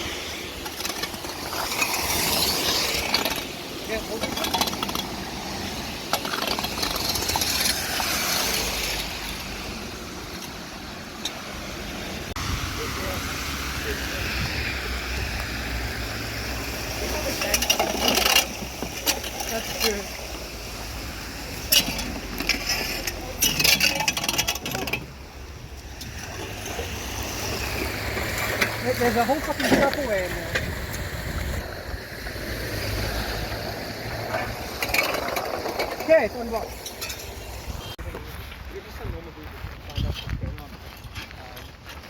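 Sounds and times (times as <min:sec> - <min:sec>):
debris scraping and clattering: 0:00.0 - 0:12.4, 0:15.4 - 0:31.7, 0:32.7 - 0:42.0
running water: 0:00.0 - 0:38.0
heavy rain hissing: 0:01.3 - 0:23.4.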